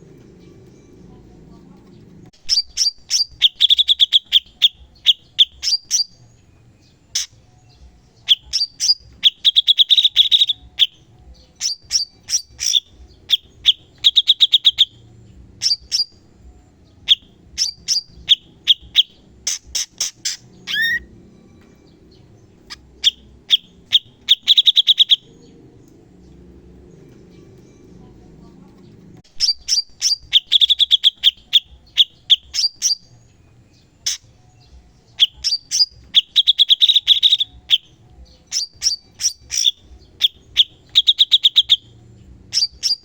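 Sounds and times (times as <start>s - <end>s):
bird singing staccato notes and trills: 0.0s - 43.0s.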